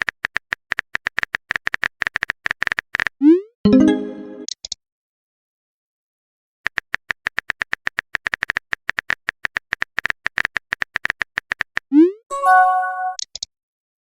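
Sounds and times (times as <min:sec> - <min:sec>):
phone keyboard typing clicks: 0:06.7 - 0:11.9.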